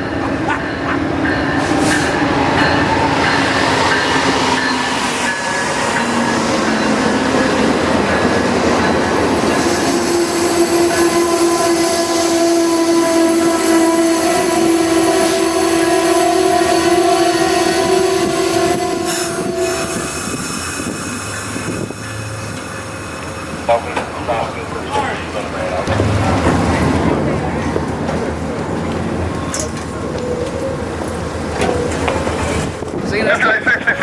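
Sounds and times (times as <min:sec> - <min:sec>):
train rumbling on rails: 0:00.0 - 0:34.0
train brakes squealing: 0:18.6 - 0:23.6.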